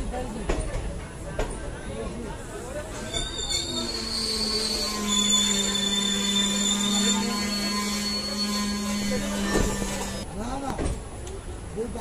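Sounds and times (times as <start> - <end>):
thin high squeal: 2.9 - 10.2.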